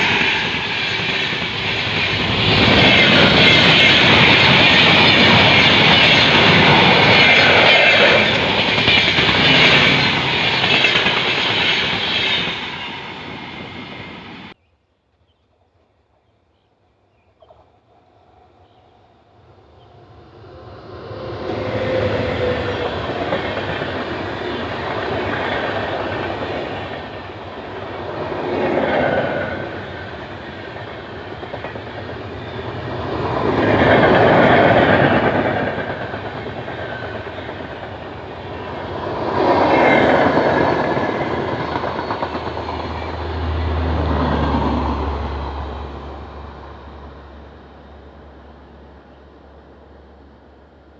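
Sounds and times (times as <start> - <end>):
train wheels clattering: 0.0 - 14.0.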